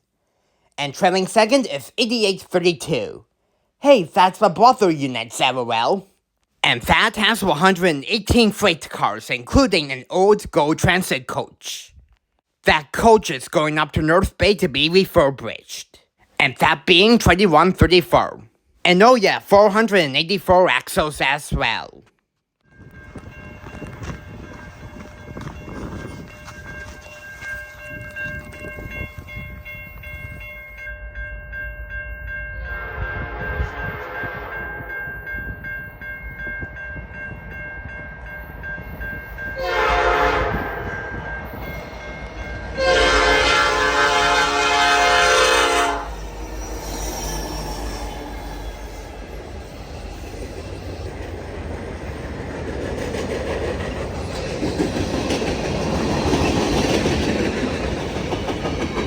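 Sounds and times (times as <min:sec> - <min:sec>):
train horn blasts: 0:32.6 - 0:35.0, 0:39.6 - 0:41.3, 0:42.8 - 0:46.8.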